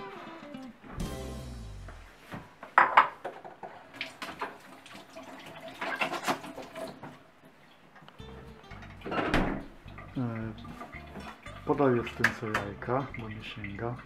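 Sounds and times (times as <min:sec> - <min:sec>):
objects clattering on a countertop: 0:02.7 - 0:04.6.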